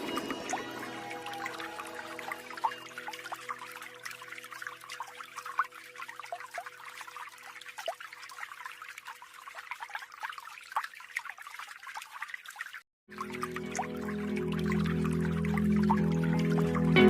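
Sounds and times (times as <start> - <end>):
small waterfall trickling and splashing: 0.0 - 17.0.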